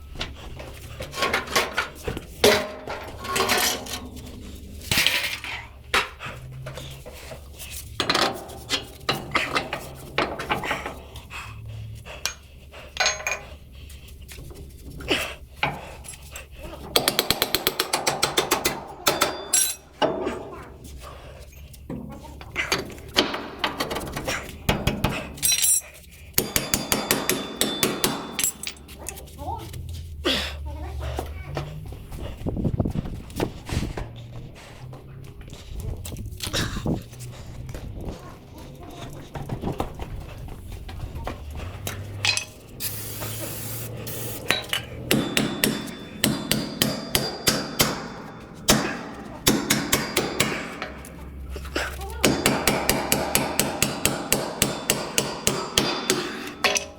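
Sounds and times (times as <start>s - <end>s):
hammer striking metal: 17.0s - 20.2s, 26.4s - 29.0s, 44.3s - 51.4s, 52.2s - 56.9s.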